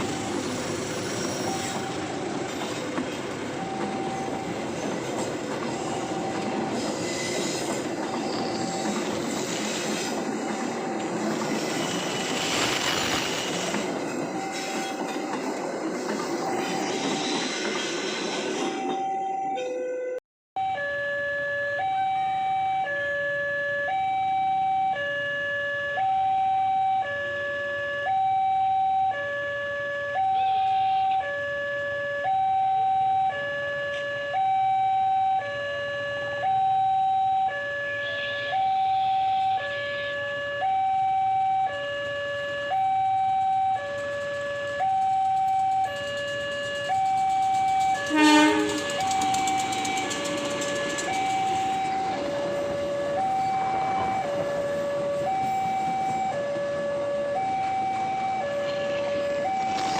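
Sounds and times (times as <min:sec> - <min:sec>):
two-tone crossing alarm: 0:00.0 - 0:59.9
short horn blast: 0:48.0 - 0:49.0.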